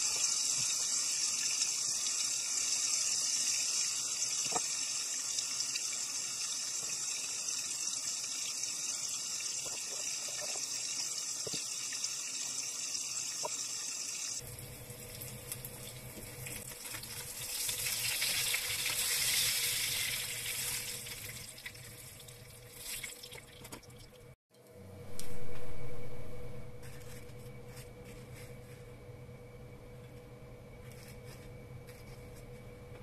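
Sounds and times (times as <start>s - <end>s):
fish sizzling in a frying pan: 0.0s - 21.8s
low hum: 24.6s - 33.0s.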